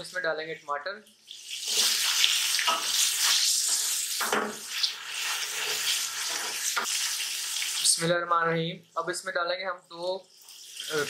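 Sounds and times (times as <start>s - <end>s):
tomatoes sizzling in hot oil: 1.2s - 8.1s, 10.2s - 11.0s.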